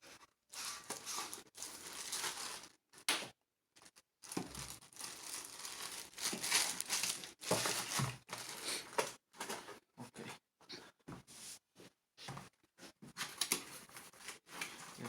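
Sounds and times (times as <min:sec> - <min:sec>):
packaging crinkling and rustling: 0:00.5 - 0:03.1, 0:03.8 - 0:09.6.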